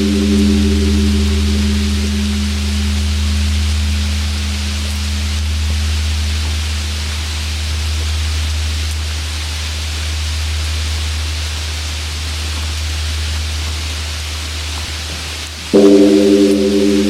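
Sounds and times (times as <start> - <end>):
temple bell humming: 0.0 - 6.3, 15.7 - 17.0
steady rain falling: 0.0 - 17.0.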